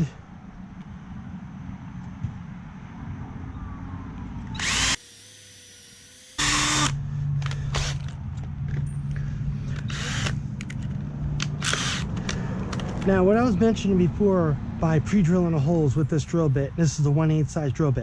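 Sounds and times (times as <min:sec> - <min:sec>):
power drill boring holes: 0:04.6 - 0:08.1, 0:09.8 - 0:10.4, 0:11.6 - 0:12.1.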